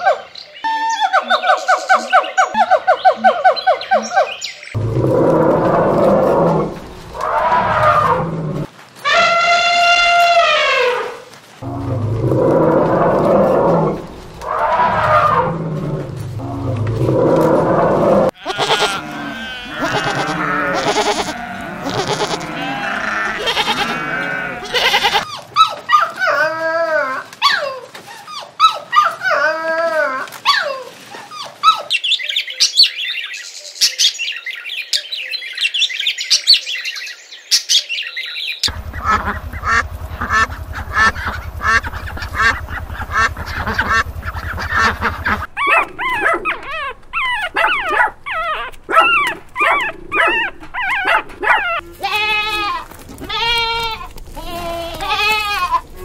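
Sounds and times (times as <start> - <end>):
high-pitched animal calls: 0.0 - 15.8, 16.4 - 26.4, 38.7 - 56.0
low hum: 4.8 - 8.7, 11.6 - 18.3, 38.7 - 56.0
goats bleating: 18.3 - 25.3, 38.7 - 45.8, 51.7 - 56.0
lamb bleating: 18.3 - 25.3, 51.7 - 56.0
ducks quacking: 18.4 - 25.2, 38.7 - 52.6.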